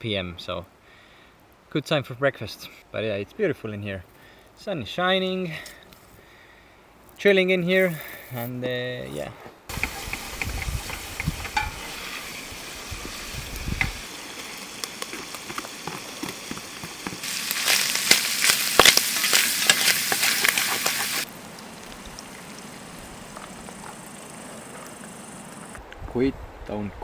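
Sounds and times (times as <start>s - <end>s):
food sizzling in a frying pan: 9.7s - 25.7s.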